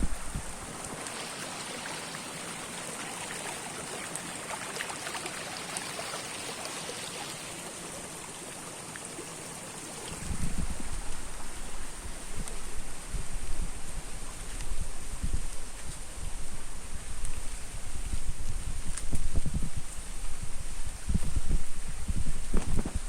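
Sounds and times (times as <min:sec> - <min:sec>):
wind on microphone: 0:00.0 - 0:01.1, 0:10.1 - 0:23.0
flowing water: 0:00.0 - 0:23.0.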